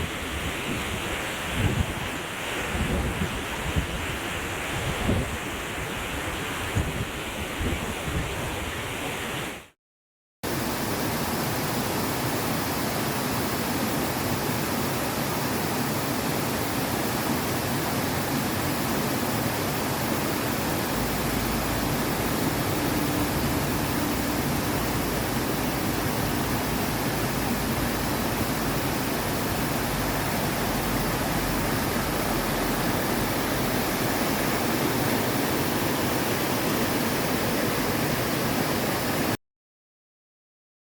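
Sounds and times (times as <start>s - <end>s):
waterfall rushing: 10.5s - 39.4s.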